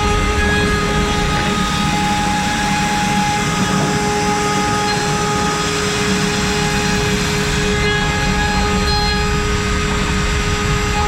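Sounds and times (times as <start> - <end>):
router spindle whine: 0.0 - 11.0.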